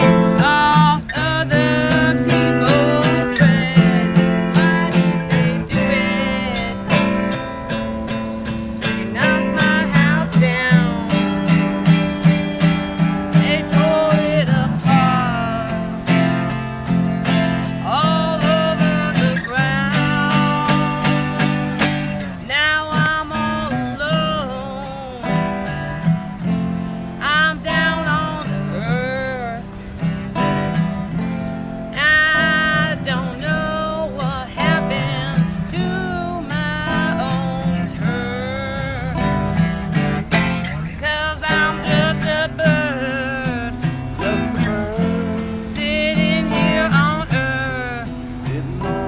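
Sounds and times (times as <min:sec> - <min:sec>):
strummed acoustic guitar: 0:00.0 - 0:49.0.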